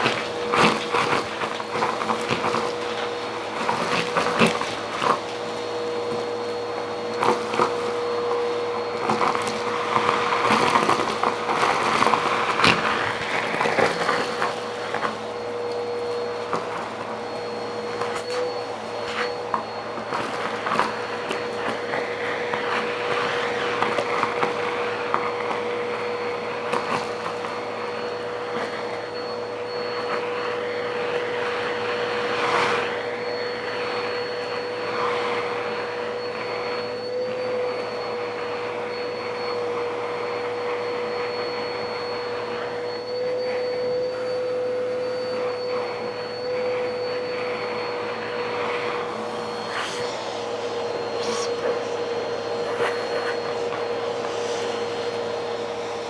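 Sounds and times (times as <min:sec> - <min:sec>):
motor running with whine: 0:00.0 - 0:56.0
rushing air: 0:08.0 - 0:25.4, 0:30.2 - 0:36.2, 0:47.2 - 0:56.0.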